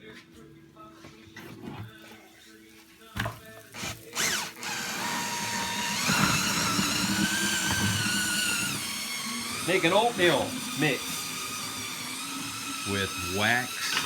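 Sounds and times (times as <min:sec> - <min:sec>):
small electric motor whining: 0:03.8 - 0:14.0.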